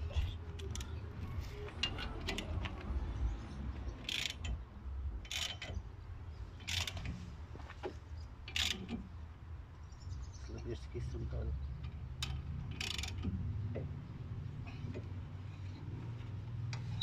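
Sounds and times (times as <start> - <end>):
metal tools clicking and creaking: 0.0 - 2.9, 3.9 - 4.6, 5.2 - 5.9, 6.5 - 7.2, 8.4 - 9.1, 11.8 - 13.9.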